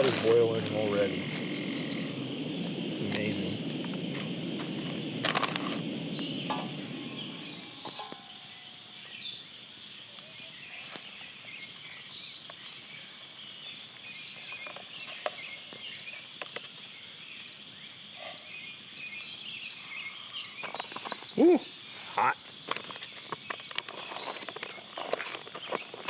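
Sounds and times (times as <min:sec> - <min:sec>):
camp stove burner rushing: 0:00.0 - 0:09.2
high insect drone: 0:00.0 - 0:10.0
frogs and insects chirping: 0:00.0 - 0:11.1.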